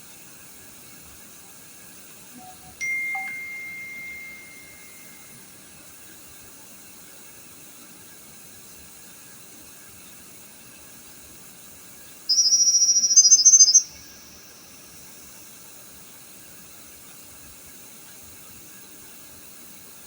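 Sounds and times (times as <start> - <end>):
steady background hiss: 0.0 - 5.8, 10.1 - 20.0
electronic ding: 2.4 - 5.3.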